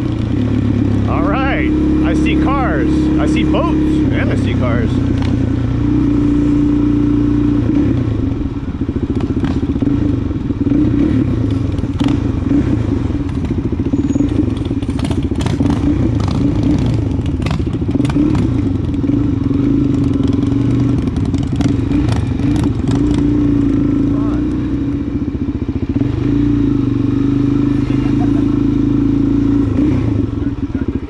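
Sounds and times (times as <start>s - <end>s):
motorcycle engine running slowly: 1.7s - 31.0s.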